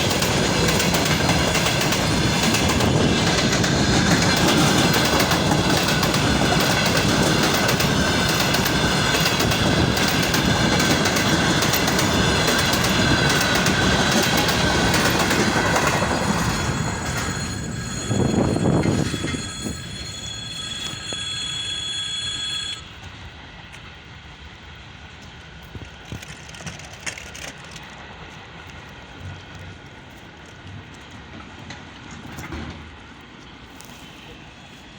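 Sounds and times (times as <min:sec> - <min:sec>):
wheels clacking over rail joints: 0:00.0 - 0:22.8, 0:25.4 - 0:33.6
high wheel squeal: 0:01.6 - 0:23.0.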